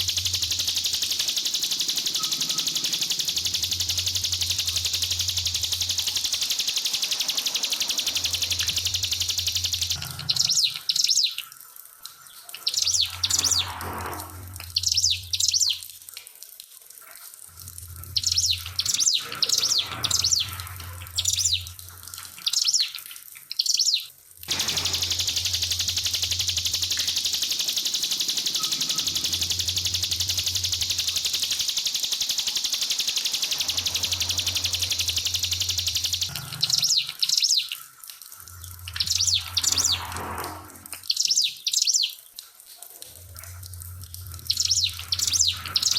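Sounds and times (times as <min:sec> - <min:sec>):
bird singing sharp high notes: 0:00.0 - 0:11.4, 0:24.5 - 0:37.7
trickling water: 0:00.0 - 0:45.9.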